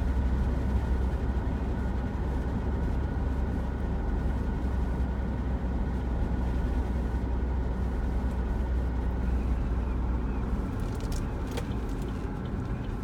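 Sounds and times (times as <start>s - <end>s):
car driving with low drone: 0.0s - 13.0s.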